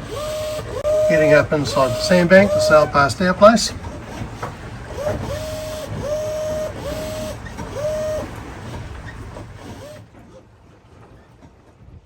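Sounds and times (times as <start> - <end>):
small motor whining: 0.0 - 3.2, 3.8 - 10.2.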